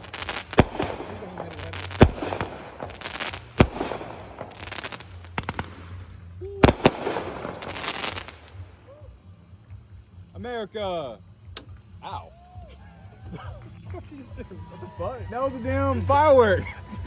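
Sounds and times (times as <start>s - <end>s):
fireworks bangs: 0.0s - 8.9s
fireworks crackling: 0.0s - 12.0s.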